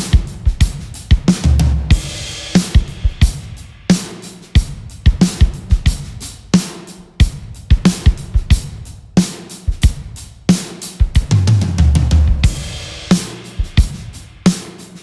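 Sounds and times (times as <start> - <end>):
drum kit groove: 0.0 - 15.0
cymbal wash: 2.0 - 4.6, 12.5 - 15.0.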